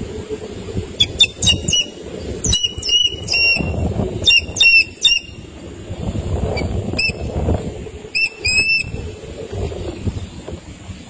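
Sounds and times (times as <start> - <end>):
low rumbling background noise: 0.0 - 11.0
bird calling in sharp high notes: 1.0 - 5.4.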